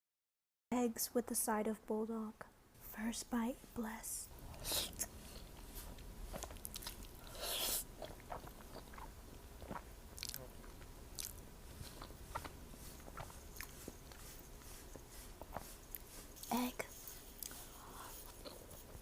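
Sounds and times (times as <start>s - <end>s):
chewing with wet clicks: 5.4s - 16.1s, 17.4s - 17.6s, 18.2s - 19.0s
loud bite: 9.7s - 11.4s.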